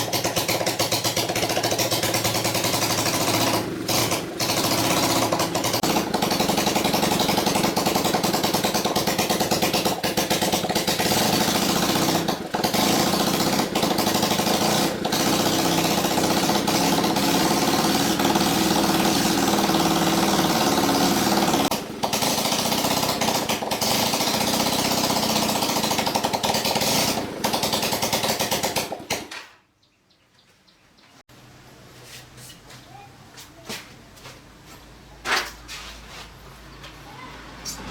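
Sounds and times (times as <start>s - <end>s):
motorcycle engine running: 0.0s - 29.3s.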